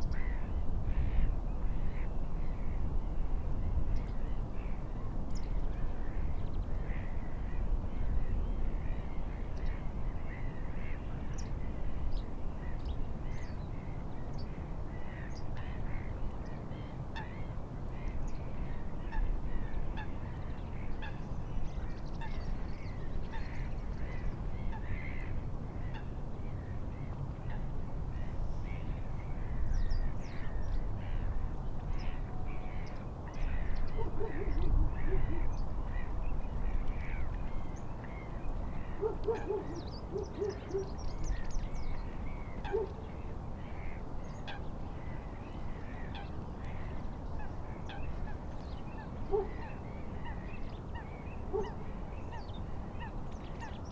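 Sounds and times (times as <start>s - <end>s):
wind: 0.0s - 53.9s
birds calling: 38.9s - 42.0s, 48.9s - 50.4s.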